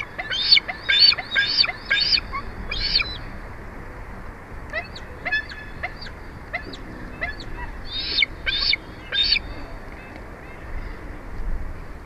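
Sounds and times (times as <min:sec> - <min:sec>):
eagle chirping: 0:00.0 - 0:03.2, 0:04.7 - 0:09.7
eagle piping calls: 0:00.0 - 0:03.3, 0:04.7 - 0:11.0.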